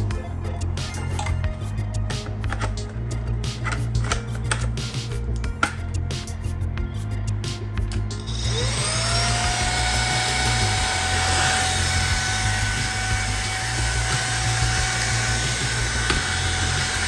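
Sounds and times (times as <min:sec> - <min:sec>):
stick vacuum motor whirring: 0:08.2 - 0:17.0.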